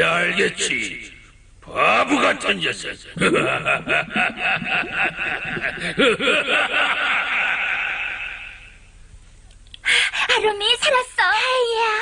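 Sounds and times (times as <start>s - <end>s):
cartoon man laughing mockingly: 3.2s - 8.6s.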